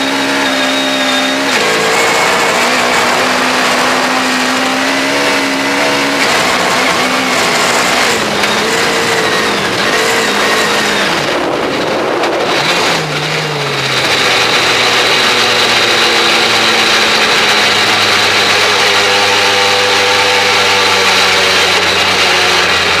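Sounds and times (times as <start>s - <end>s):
rally car engine running: 0.0s - 23.0s.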